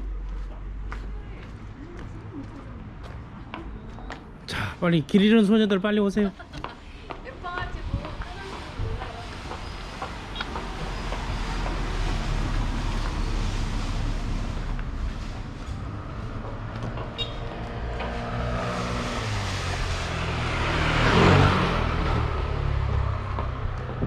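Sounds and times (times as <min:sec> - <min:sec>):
road traffic noise: 0:00.0 - 0:24.0
vehicle passing close: 0:06.6 - 0:24.0.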